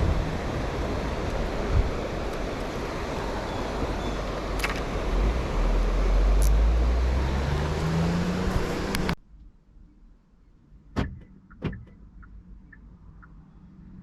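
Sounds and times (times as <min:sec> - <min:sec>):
steady rushing noise: 0:00.0 - 0:06.6
vehicle engine rumble passing: 0:00.0 - 0:09.2.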